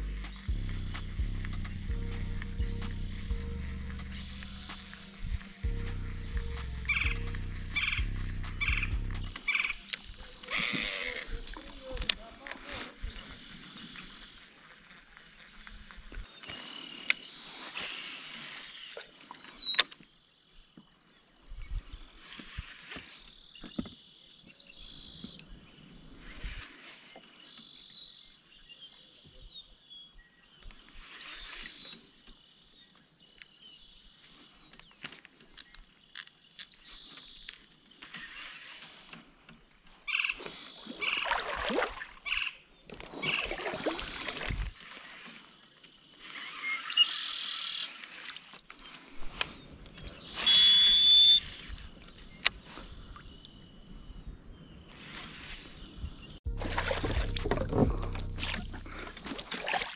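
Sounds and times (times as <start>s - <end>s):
steady high-pitched trill: 0.0s - 9.4s
small birds chirping: 0.0s - 17.5s, 27.2s - 41.5s.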